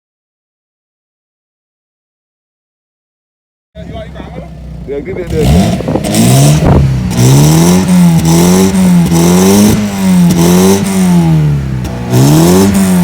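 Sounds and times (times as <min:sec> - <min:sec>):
car engine revving: 0:03.8 - 0:13.0.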